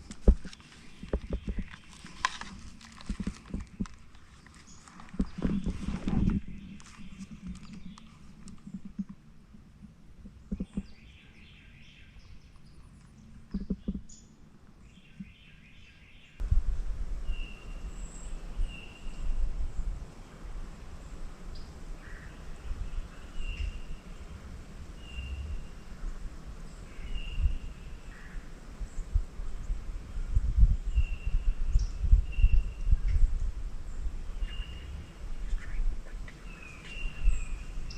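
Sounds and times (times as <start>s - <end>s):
songbird chirping: 0.4s - 9.1s, 10.2s - 16.5s, 17.2s - 37.9s
low rumble on microphone: 4.7s - 11.5s, 16.4s - 37.9s.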